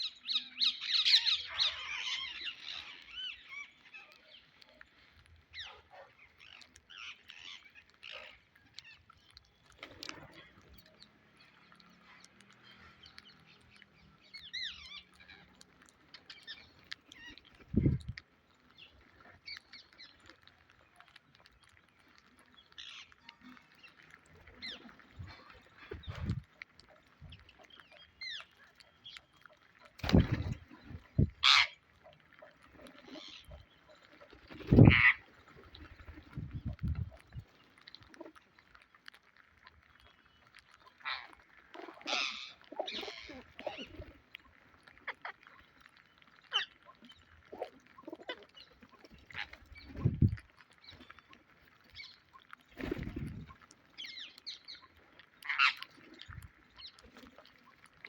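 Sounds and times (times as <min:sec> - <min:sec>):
parakeet squawks: 0:31.4 - 0:31.8, 0:34.8 - 0:35.2.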